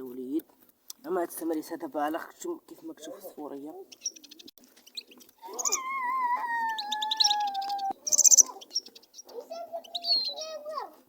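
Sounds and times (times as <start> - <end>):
finches chirping: 3.8 - 10.7
slowly falling wail: 5.4 - 8.0.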